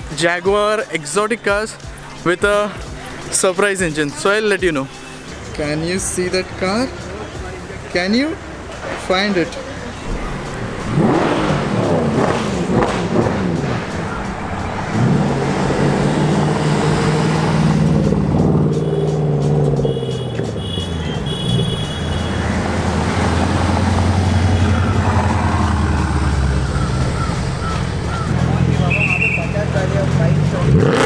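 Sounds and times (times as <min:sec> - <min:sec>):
cars driving slowly past: 0:00.9 - 0:30.9
engine revving: 0:09.8 - 0:31.0.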